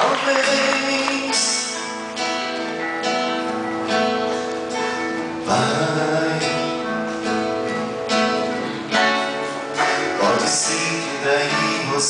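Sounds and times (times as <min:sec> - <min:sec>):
person singing: 0:00.0 - 0:01.9, 0:04.8 - 0:07.5, 0:08.2 - 0:12.0
acoustic guitar strumming chords: 0:00.0 - 0:12.0.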